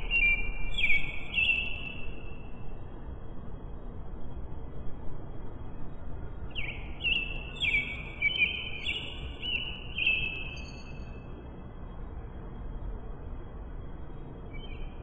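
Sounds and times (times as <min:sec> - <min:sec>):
birds whistling: 0:00.0 - 0:02.0, 0:06.6 - 0:10.7, 0:14.5 - 0:14.9
low outdoor rumble: 0:00.0 - 0:15.0.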